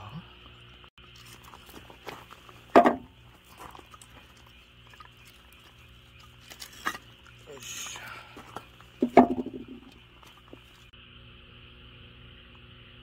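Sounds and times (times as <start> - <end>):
frogs calling: 0.0 - 13.0
wood and gear knocking: 2.6 - 3.8, 8.5 - 10.6.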